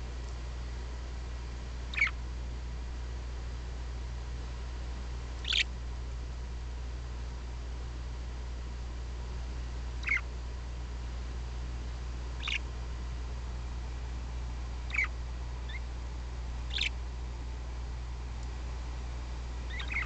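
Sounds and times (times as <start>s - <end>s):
steady low hum: 0.0s - 20.0s
parakeets chirping: 1.9s - 2.2s, 5.4s - 5.7s, 10.0s - 10.3s, 12.4s - 12.7s, 14.8s - 15.9s, 16.6s - 17.0s, 19.6s - 20.0s.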